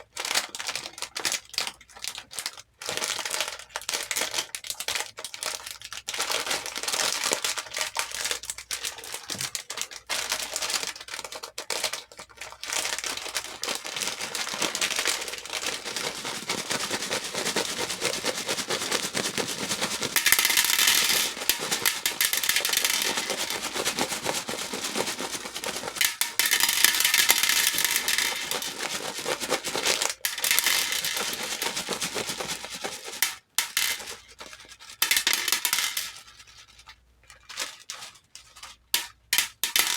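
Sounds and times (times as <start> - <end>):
hair beads clattering: 19.6 - 36.2, 39.0 - 39.9.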